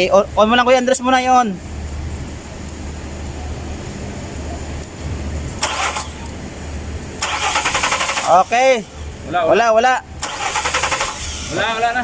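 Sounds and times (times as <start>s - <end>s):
low pulsing hum: 1.6s - 7.2s
starter motor cranking engine: 5.6s - 6.4s, 7.2s - 8.8s, 10.2s - 12.0s.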